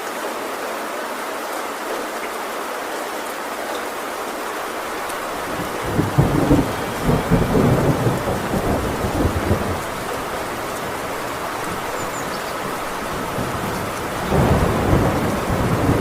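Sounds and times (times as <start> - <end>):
heavy rain on a tin roof: 0.0 - 16.0
thunder rumbling: 4.9 - 16.0.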